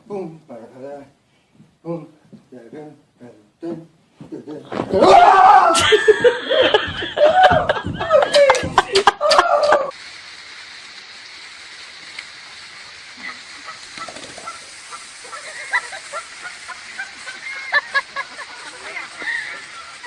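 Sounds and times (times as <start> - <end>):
steady hiss: 0.0 - 20.0
loud voices: 4.7 - 9.9.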